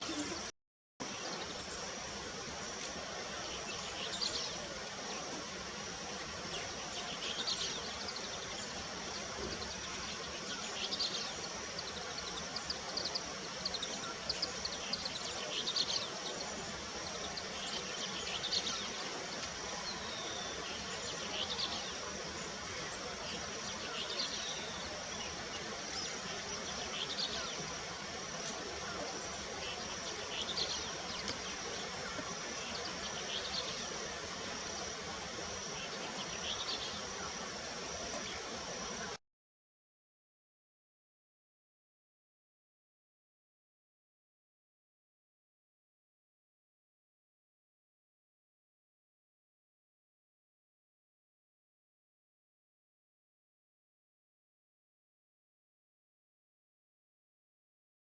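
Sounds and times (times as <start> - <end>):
songbird singing: 0.0 - 39.1.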